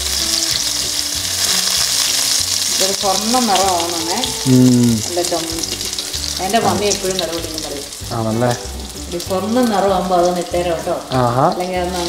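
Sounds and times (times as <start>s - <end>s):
shallots sizzling in hot oil: 0.0s - 12.0s
person speaking: 4.5s - 5.2s, 6.5s - 7.0s.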